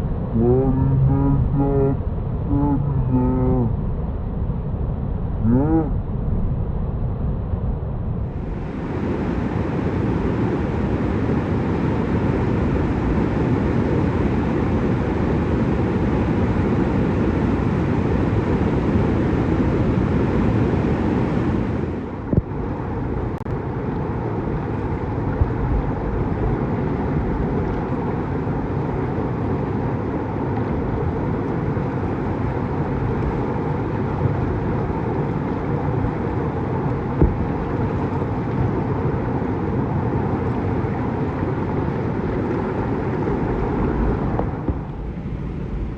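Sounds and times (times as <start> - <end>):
whitewater creek roaring: 8.5 - 15.1.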